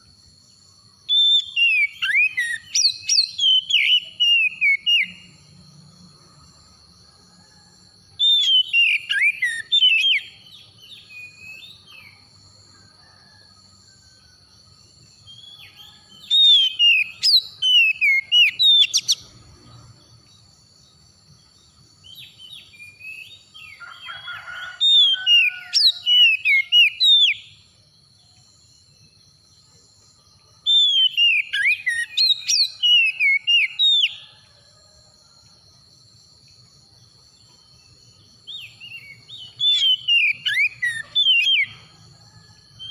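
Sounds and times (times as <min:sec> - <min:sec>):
bird singing whistled phrases: 0:01.1 - 0:05.2, 0:08.3 - 0:12.2, 0:15.3 - 0:19.2, 0:30.8 - 0:34.2, 0:38.6 - 0:41.8.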